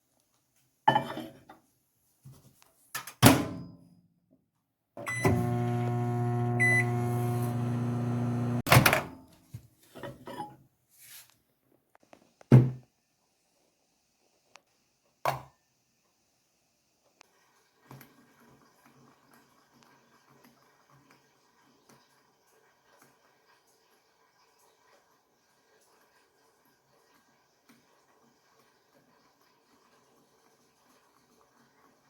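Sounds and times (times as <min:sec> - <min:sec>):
microwave oven humming: 0:05.0 - 0:08.7.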